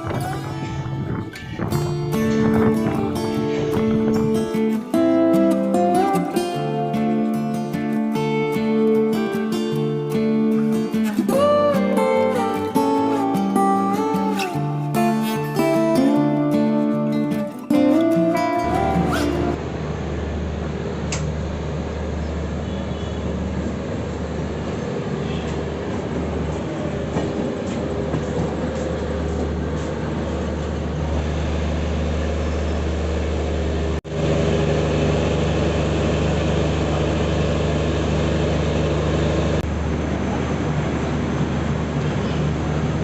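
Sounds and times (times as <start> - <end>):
passenger train rumbling: 0.0 - 6.2, 18.0 - 43.0.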